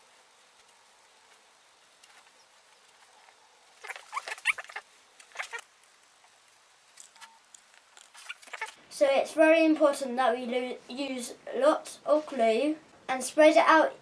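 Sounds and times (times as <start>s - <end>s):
glue bottle squeaky sputters: 3.8s - 5.6s, 8.0s - 8.8s.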